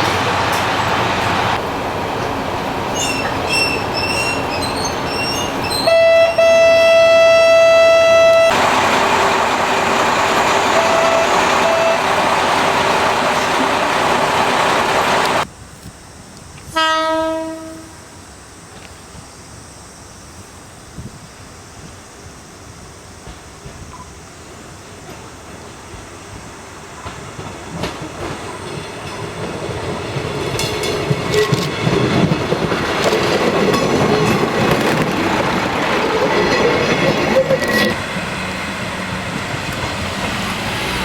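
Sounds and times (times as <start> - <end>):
diesel railcar running: 0.0 - 41.0
train horn blast: 5.8 - 9.3, 10.5 - 12.8, 16.7 - 18.0.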